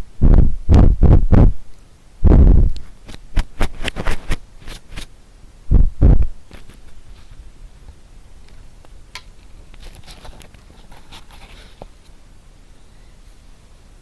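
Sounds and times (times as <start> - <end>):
ear pick scratches and clicks: 2.3 - 5.1
muffled brushing rubs: 2.4 - 5.1, 9.7 - 12.0.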